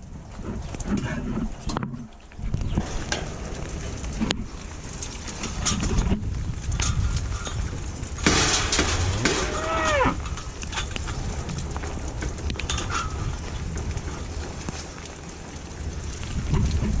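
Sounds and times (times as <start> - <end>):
low rumble of rain: 0.0 - 17.0
steer bawling: 8.3 - 10.6.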